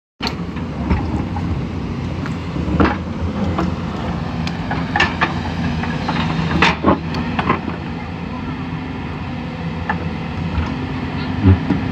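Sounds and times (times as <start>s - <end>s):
excavator diesel engine running: 0.2s - 11.9s.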